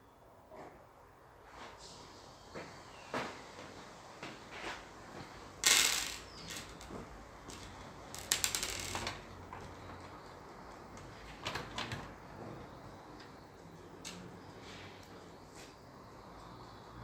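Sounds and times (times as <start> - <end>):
rattle of clicks: 7.5 - 9.2.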